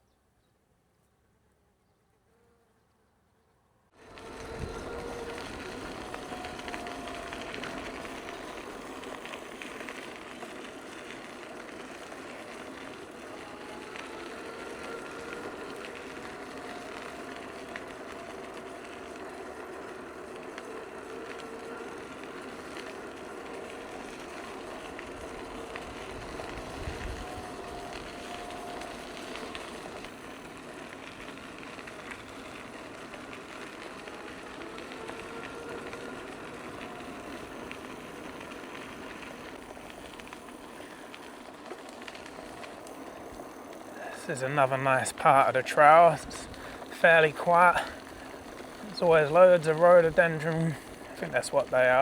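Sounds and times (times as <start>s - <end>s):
bicycle tyres rumbling on path: 3.9s - 52.0s.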